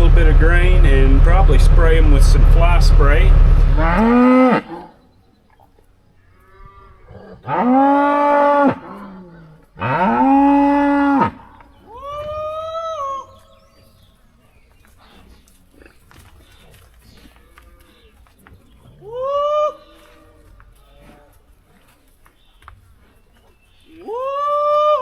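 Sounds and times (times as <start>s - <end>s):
cows mooing: 3.5s - 4.8s, 6.4s - 11.4s.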